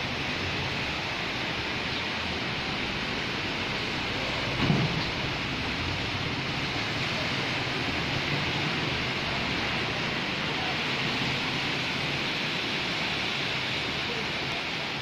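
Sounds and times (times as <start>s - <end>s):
heavy rain on flooded street: 0.0s - 15.0s
thump: 4.6s - 5.2s.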